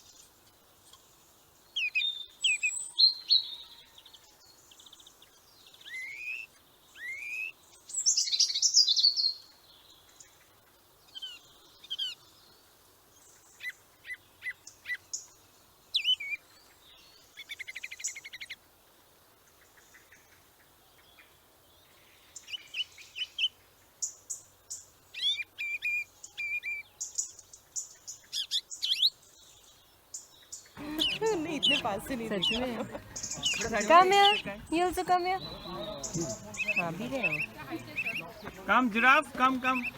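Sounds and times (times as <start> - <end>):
birds calling and chirping: 30.5 - 39.9.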